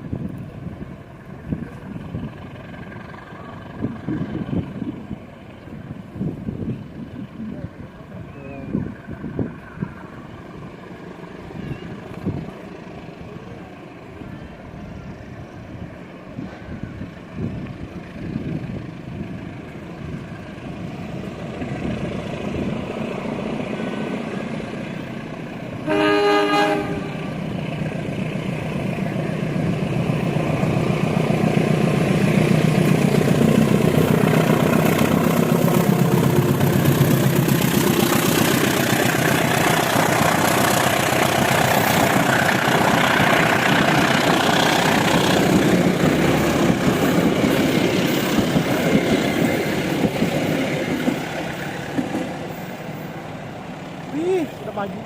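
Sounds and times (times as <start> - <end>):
locomotive engine rumble: 0.0 - 55.0
wheels on rail: 0.0 - 55.0
train horn blast: 25.8 - 27.5.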